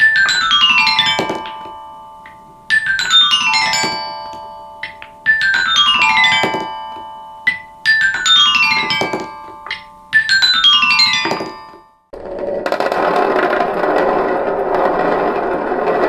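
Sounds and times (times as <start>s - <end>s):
balls striking xylophone bars: 0.0s - 12.1s.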